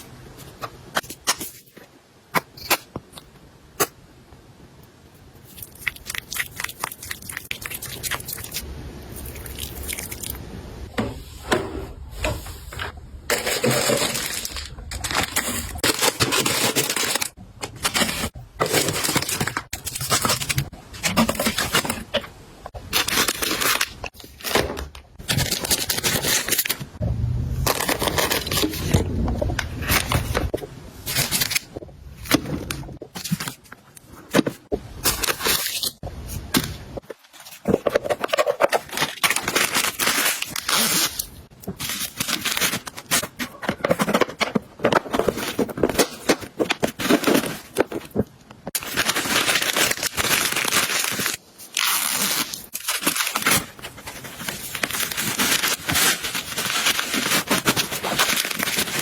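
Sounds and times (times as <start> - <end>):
plastic crinkling and tearing: 13.3 - 22.2, 22.8 - 26.9, 27.6 - 29.0, 29.8 - 59.0.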